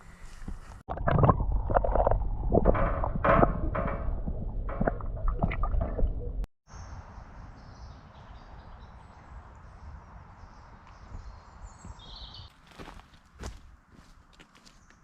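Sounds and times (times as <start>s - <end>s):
bird chirp: 6.7s - 12.6s.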